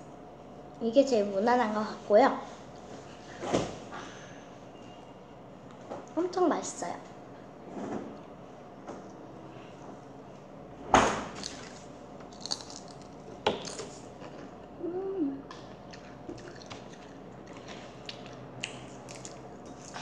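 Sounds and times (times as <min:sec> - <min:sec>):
chewing with crunches: 0:11.4 - 0:14.6, 0:15.5 - 0:20.0.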